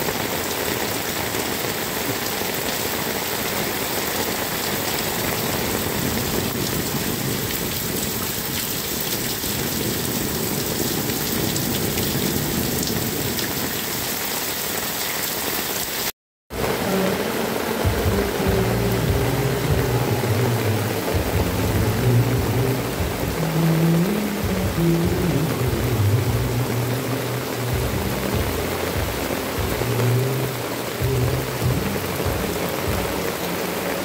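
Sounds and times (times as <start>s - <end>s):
heavy rain on roofs and road: 0.0s - 34.0s
steady low tone: 16.6s - 33.4s.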